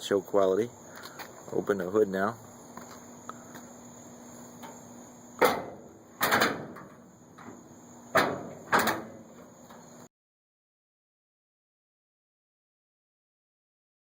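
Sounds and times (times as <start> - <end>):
metal hood clunks and rattles: 5.4 - 9.5.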